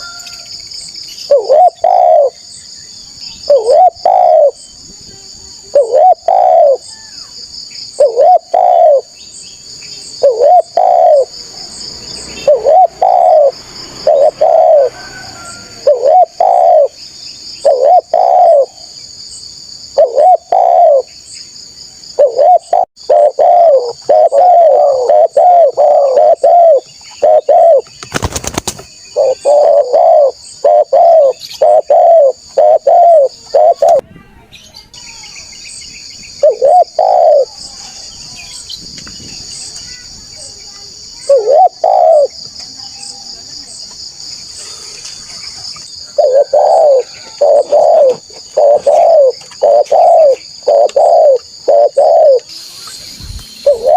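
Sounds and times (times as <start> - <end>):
dove cooing: 1.3 - 2.4, 3.5 - 4.6, 5.6 - 6.9, 8.0 - 9.2, 10.2 - 11.4, 12.4 - 17.0, 17.6 - 19.0, 19.9 - 21.1, 22.2 - 27.9, 29.1 - 34.0, 36.4 - 37.6, 41.2 - 42.4, 46.0 - 52.5, 53.6 - 53.9.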